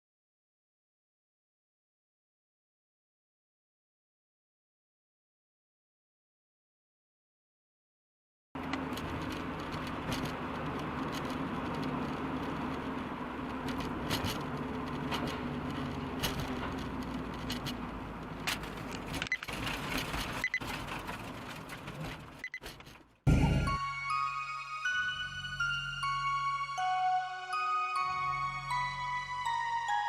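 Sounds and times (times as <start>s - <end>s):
light clicks and rattles: 8.6s - 23.1s
car engine and road hum: 8.6s - 23.8s.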